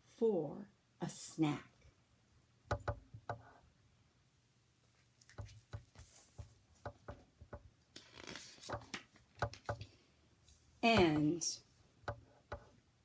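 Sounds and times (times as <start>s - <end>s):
paper rustle: 8.0s - 9.3s.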